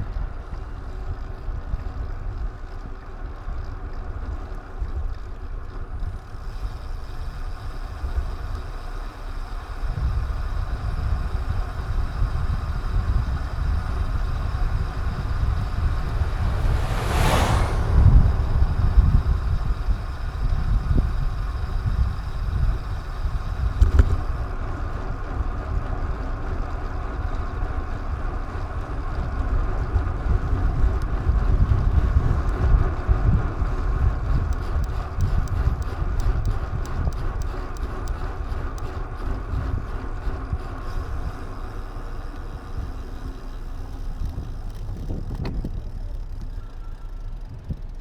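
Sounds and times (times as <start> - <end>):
road noise rumble: 0.0 - 48.0
wind buffeting: 11.2 - 24.5, 29.0 - 48.0
light rapid ticking: 18.4 - 48.0.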